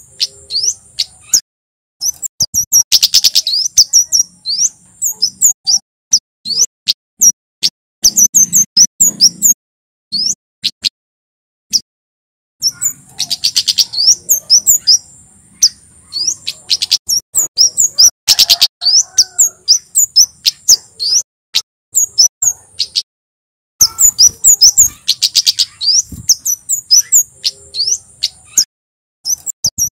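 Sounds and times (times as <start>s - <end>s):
bird calling in sharp chips: 0.0s - 1.4s, 2.0s - 7.4s, 12.6s - 21.2s, 23.8s - 29.9s.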